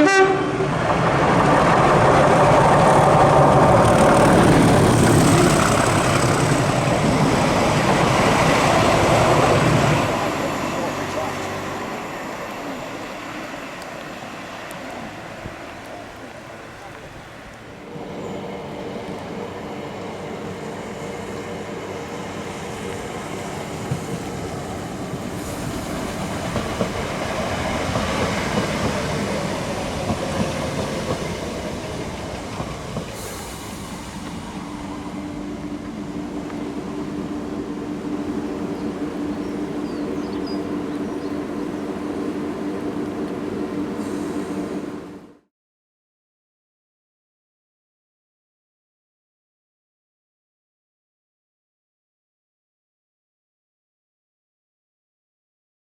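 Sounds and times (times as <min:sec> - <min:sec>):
train rumble: 0:00.0 - 0:45.4
diesel locomotive engine drone: 0:00.0 - 0:45.5.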